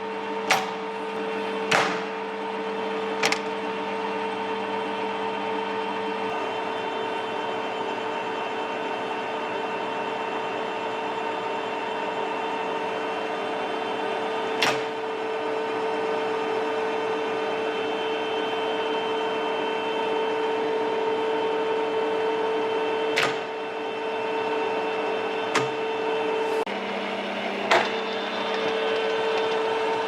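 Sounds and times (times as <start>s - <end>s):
lathe running with gear hum: 0.0s - 30.0s.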